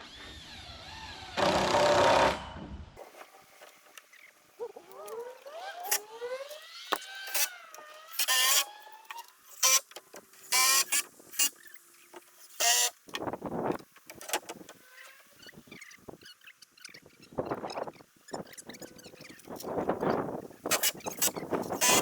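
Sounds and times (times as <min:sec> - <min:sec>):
small electric motor whining: 0:04.8 - 0:11.9, 0:14.9 - 0:22.0.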